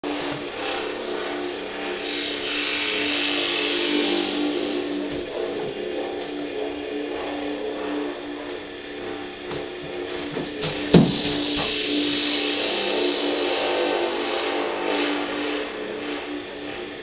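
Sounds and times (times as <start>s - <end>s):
band droning chord: 0.0s - 17.0s
hissy noise: 10.6s - 13.8s.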